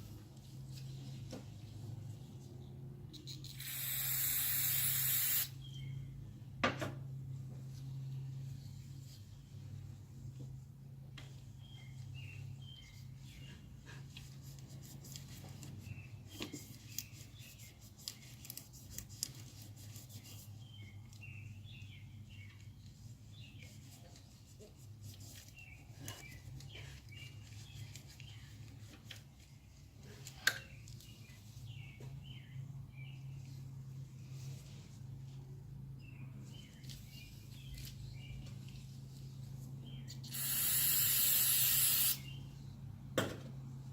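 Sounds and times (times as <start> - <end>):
small birds chirping: 39.8 - 42.6.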